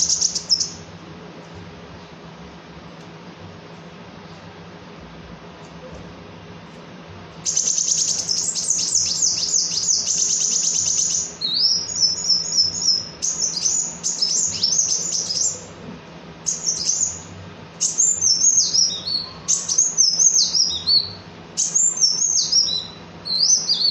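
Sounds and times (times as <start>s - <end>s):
sunbird twittering song: 0.0s - 0.9s, 7.4s - 15.8s, 16.4s - 23.9s.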